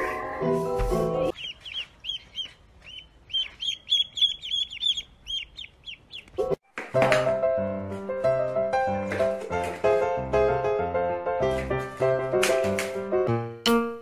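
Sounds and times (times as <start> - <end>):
ducklings peeping: 1.2 - 6.6.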